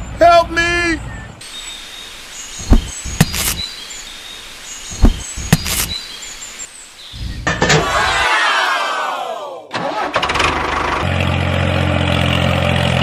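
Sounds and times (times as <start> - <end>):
faint bird chirps: 0.8 - 7.4.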